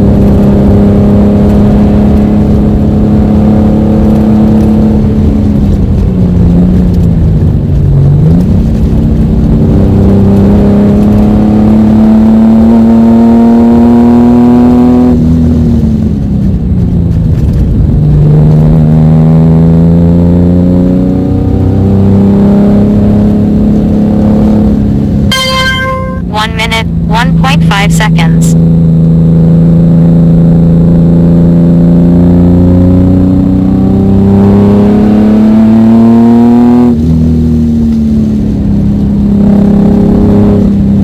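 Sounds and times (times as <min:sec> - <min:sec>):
car engine revving: 0:26.5 - 0:40.8.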